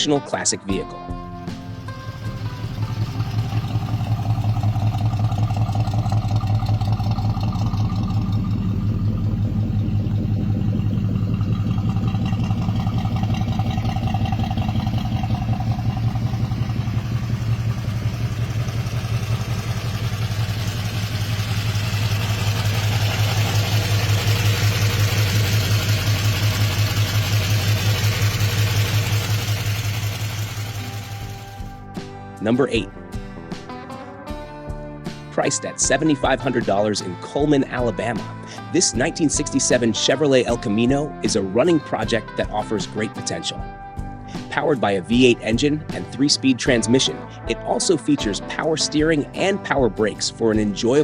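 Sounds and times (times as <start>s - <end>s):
car engine idling: 1.6s - 31.8s.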